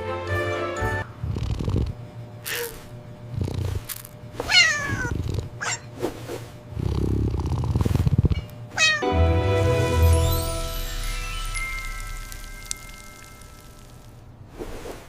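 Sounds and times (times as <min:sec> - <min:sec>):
cat purring: 0:01.2 - 0:08.5
cat meowing: 0:04.4 - 0:05.9, 0:08.8 - 0:09.1.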